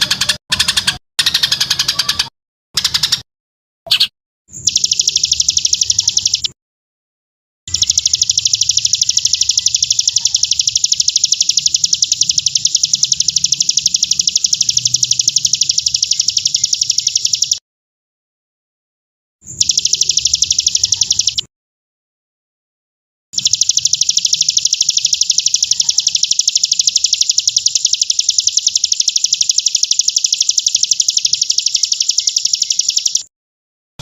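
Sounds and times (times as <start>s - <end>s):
high bird trill: 3.9s - 6.6s, 7.7s - 17.6s, 19.4s - 21.5s, 23.4s - 33.3s.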